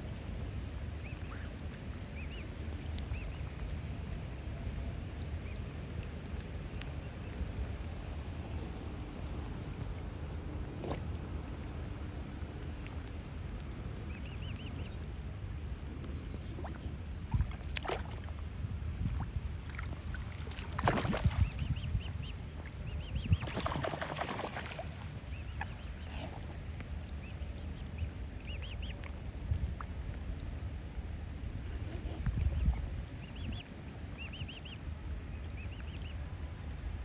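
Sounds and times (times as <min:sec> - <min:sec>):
water splashing: 0:16.4 - 0:21.8, 0:23.4 - 0:25.8.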